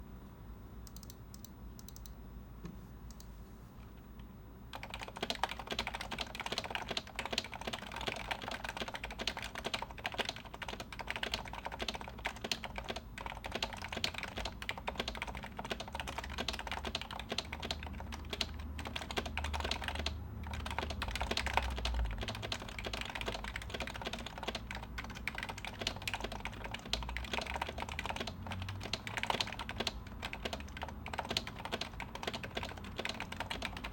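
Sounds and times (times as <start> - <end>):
faint hum: 0.0 - 33.9
fast typing on damped keyboard: 4.7 - 33.9.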